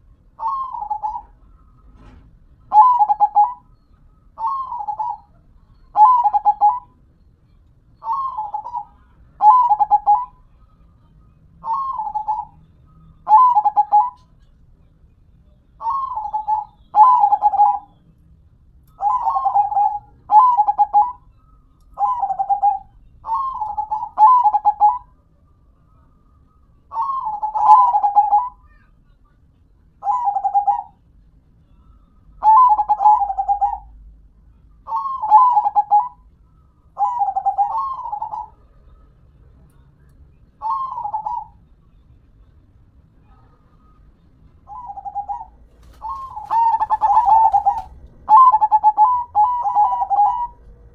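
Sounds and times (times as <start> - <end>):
dove cooing: 0.4 - 3.6, 4.4 - 7.0, 8.0 - 10.4, 11.6 - 12.6, 13.2 - 14.5, 15.8 - 18.0, 19.0 - 21.2, 22.0 - 25.1, 26.9 - 28.8, 30.0 - 31.0, 32.4 - 34.0, 34.9 - 36.3, 37.0 - 38.6, 40.6 - 41.6, 44.6 - 50.9.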